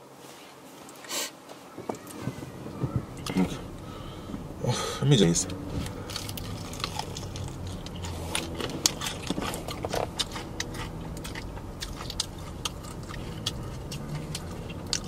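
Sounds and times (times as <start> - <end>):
chewing crispy fried chicken: 5.8 - 15.0.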